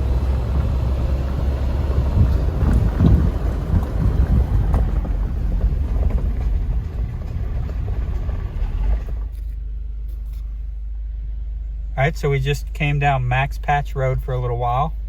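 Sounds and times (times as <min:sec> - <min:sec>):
knocks and rattles in car: 0:00.0 - 0:09.4
car engine and road noise: 0:00.0 - 0:15.0.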